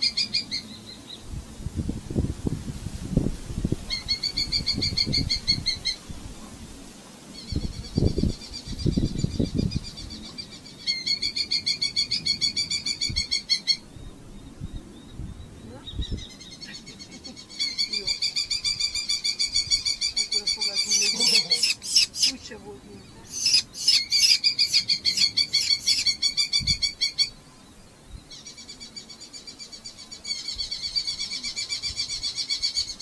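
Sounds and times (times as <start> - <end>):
falcon chattering calls: 17.4 - 22.6, 23.2 - 27.3.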